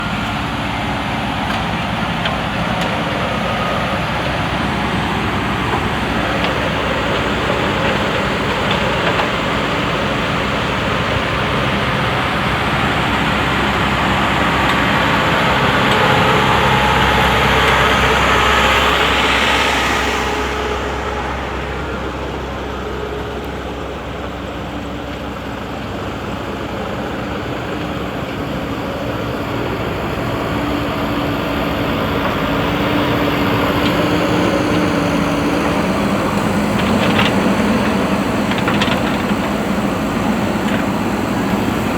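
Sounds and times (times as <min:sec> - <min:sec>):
diesel engine revving: 0:00.0 - 0:41.9.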